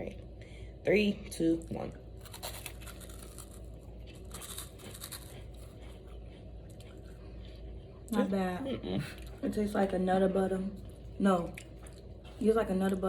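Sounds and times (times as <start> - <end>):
wafer crunching and chewing: 2.2 - 8.1.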